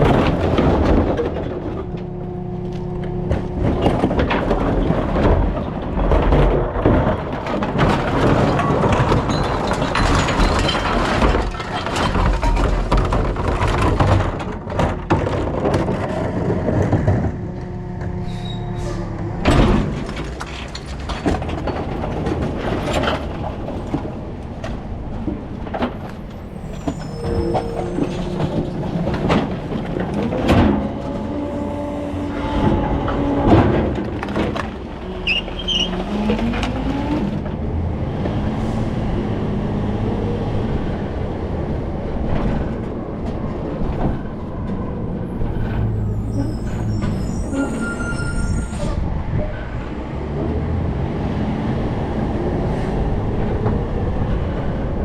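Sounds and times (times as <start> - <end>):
rising hydraulic whine: 17.4 - 19.6, 26.0 - 33.5.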